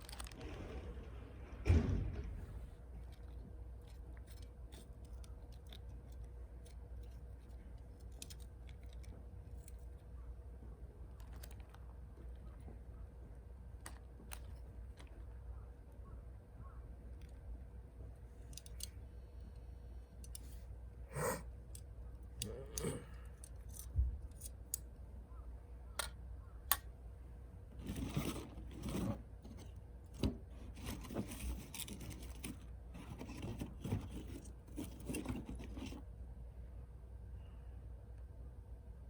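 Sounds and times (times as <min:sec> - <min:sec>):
scraping and rustling: 0:00.0 - 0:10.1, 0:27.7 - 0:36.1
sharp snaps and clicks: 0:25.9 - 0:26.9.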